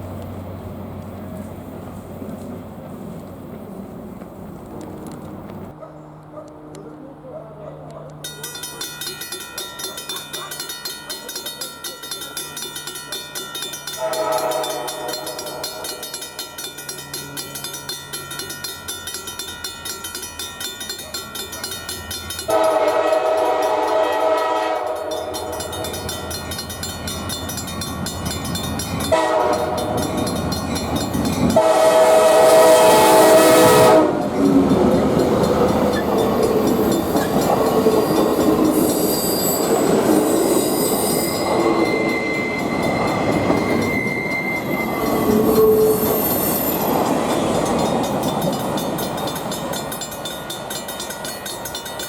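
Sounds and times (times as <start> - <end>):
locomotive air horn blasts: 14.0 - 16.0, 22.5 - 25.6, 29.1 - 30.0, 31.6 - 34.4.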